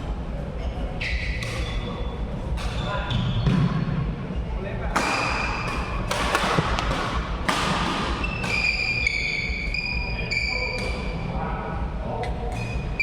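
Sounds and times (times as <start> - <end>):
shoes squeaking on court floor: 0.5 - 4.5, 8.1 - 11.2
racket hitting shuttlecock: 1.4 - 1.9, 2.5 - 4.0, 4.9 - 9.4.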